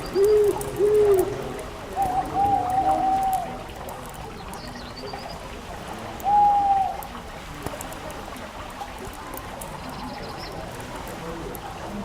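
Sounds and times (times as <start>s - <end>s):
faint crackling clicks: 0.0s - 1.4s, 2.0s - 5.4s, 7.0s - 11.7s
hooting bird call: 0.0s - 3.6s, 6.2s - 7.1s.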